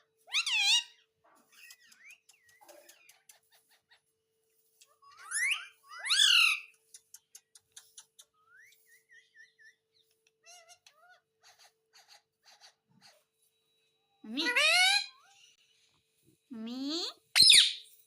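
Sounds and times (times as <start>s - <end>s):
parrot squawking: 0.2s - 2.0s, 5.0s - 6.7s, 14.3s - 15.4s, 17.4s - 17.9s
parrot chirps and clicks: 0.3s - 4.0s, 4.8s - 8.8s.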